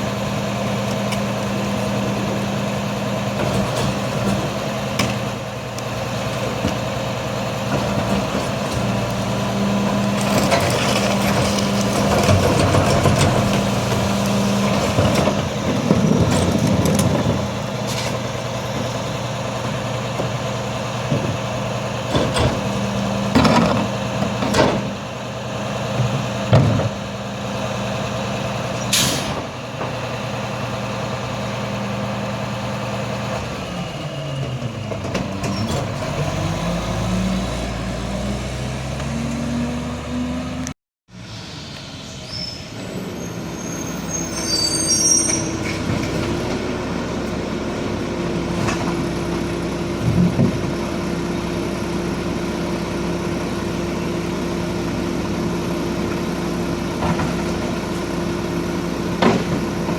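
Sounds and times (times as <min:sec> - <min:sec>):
garbage truck engine running: 0:00.0 - 0:59.9
clanks and knocks: 0:23.3 - 0:24.9
air brakes hissing: 0:28.8 - 0:29.4.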